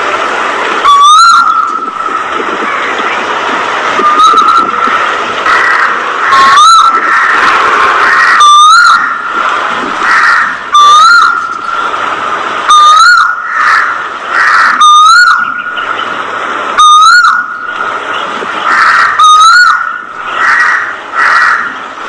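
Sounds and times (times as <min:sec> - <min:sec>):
steady background din: 0:00.0 - 0:22.0.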